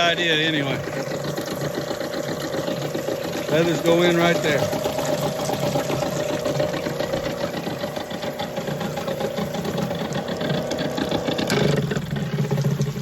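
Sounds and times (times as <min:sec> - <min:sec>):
electric motor humming: 0:00.0 - 0:13.0
water running into tub: 0:00.0 - 0:13.0.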